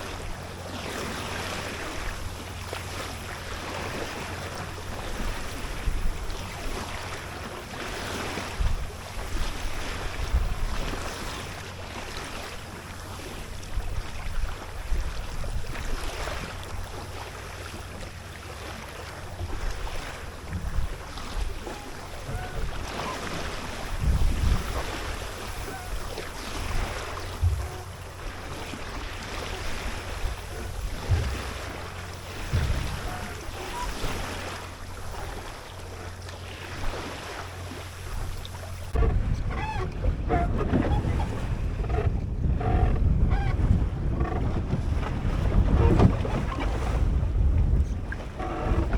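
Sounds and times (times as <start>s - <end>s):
water splashing along hull: 0.0s - 48.9s
wind buffeting microphone: 19.3s - 35.8s, 37.9s - 48.9s.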